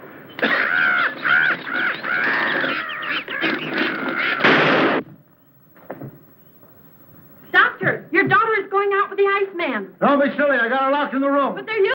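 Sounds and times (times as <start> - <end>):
loud burst of noise: 0.0 - 5.2
bird squawking: 0.3 - 4.6.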